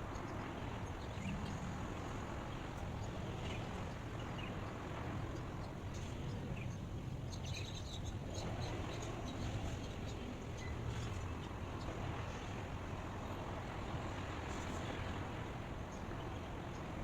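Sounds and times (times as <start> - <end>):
outdoor ambient rush: 0.0 - 17.0.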